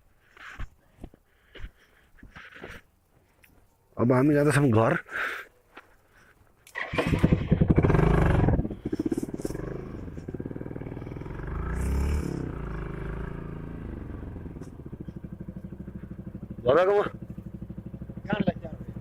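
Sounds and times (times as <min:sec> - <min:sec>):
motorcycle engine revving: 0:06.7 - 0:19.0.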